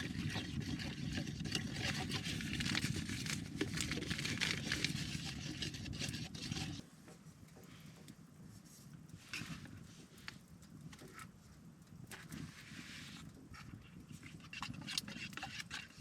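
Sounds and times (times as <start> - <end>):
spoon scraping a pot: 0.0 - 6.8, 12.4 - 16.0.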